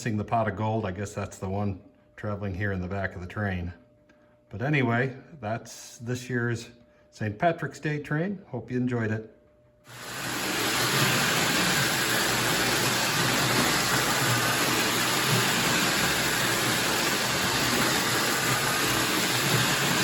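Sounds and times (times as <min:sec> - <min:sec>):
toy train whirring on track: 0:09.9 - 0:20.0.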